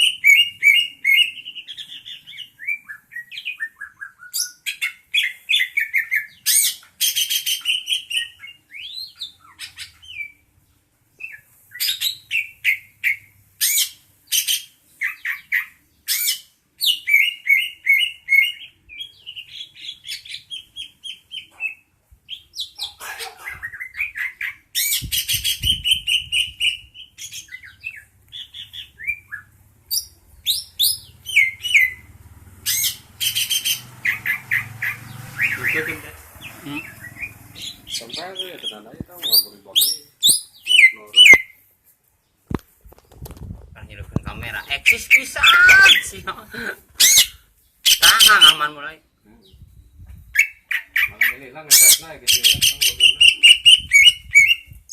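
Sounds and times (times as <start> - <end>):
bird chirping and whistling: 0.0 - 10.4, 11.2 - 15.4, 23.6 - 32.1, 32.7 - 36.0, 39.2 - 41.5, 44.8 - 46.1, 47.0 - 48.6, 51.7 - 54.9.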